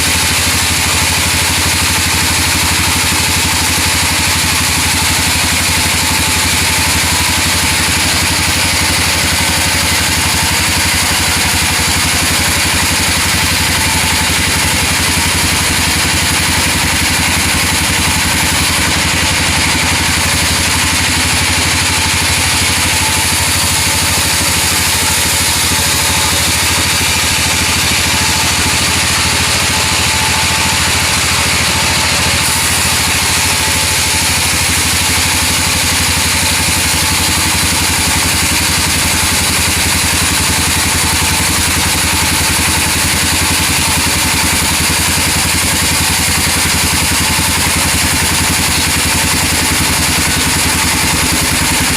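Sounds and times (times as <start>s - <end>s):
sawmill engine running: 0.0s - 51.9s.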